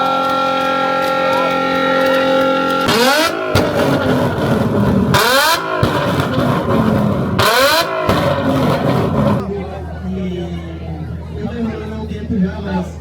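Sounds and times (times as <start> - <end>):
car engine revving: 0.0 - 9.5.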